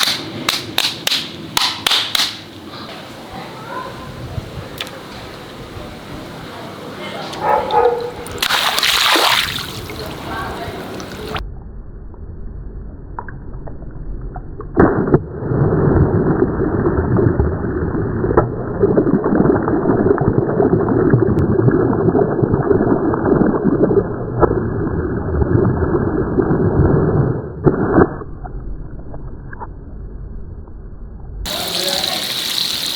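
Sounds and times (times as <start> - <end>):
water rushing and splashing: 8.0 - 11.4, 31.5 - 32.9
water-filled toy bursting: 8.2 - 11.4.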